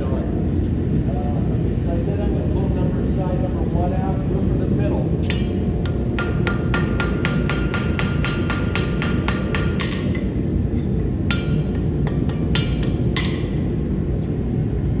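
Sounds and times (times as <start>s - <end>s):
steady low rumble: 0.2s - 15.0s
hammer striking metal on anvil: 5.2s - 14.0s.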